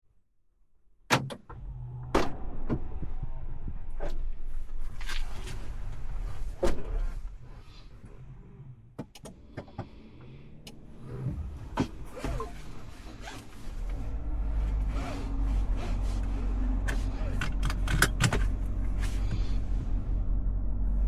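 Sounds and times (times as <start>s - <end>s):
car engine rumble: 1.2s - 21.0s
handling clicks and knocks: 16.9s - 19.2s.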